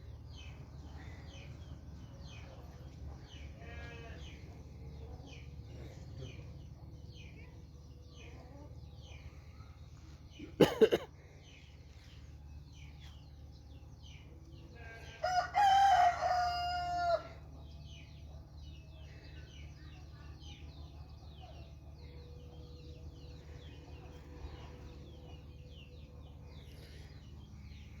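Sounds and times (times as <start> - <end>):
low steady hum: 0.0 - 28.0
rooster crowing: 15.2 - 17.4.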